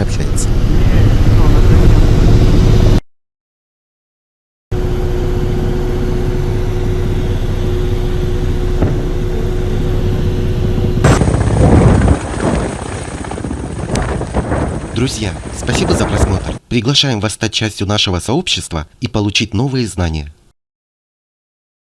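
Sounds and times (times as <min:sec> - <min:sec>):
helicopter engine and rotor noise: 0:04.8 - 0:11.5.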